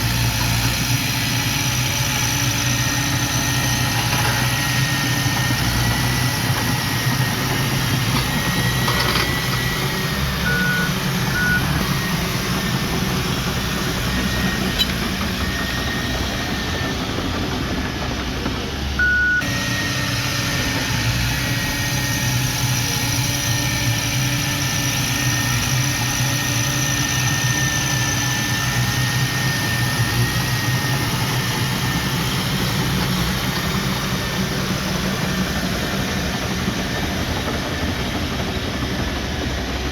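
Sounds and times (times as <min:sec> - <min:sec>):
heavy machinery diesel engine: 0:00.0 - 0:39.9
short beeps: 0:10.4 - 0:11.8, 0:14.4 - 0:15.0, 0:19.0 - 0:19.5.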